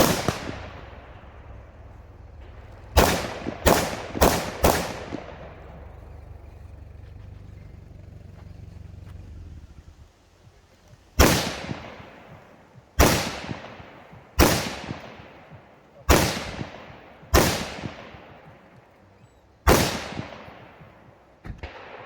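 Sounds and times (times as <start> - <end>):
rifle shots echoing: 0.0 - 7.0, 11.2 - 18.8, 19.6 - 22.0
low rumble: 0.0 - 13.0.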